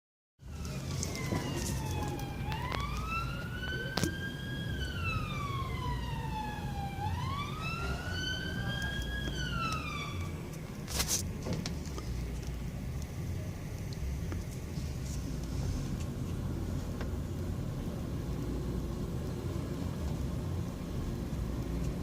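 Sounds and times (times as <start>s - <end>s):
emergency siren wailing: 0.4s - 10.6s
traffic rumble: 0.4s - 22.0s.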